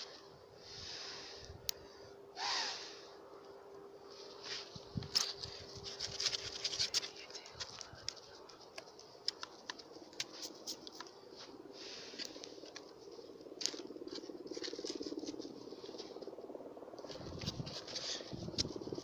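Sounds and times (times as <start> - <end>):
wood fire crackling and popping: 5.1 - 11.1.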